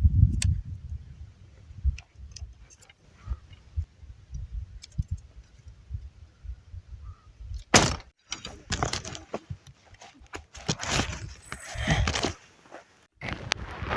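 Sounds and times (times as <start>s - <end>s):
wind buffeting microphone: 0.0s - 7.7s
small clicks and rustles: 1.9s - 3.7s.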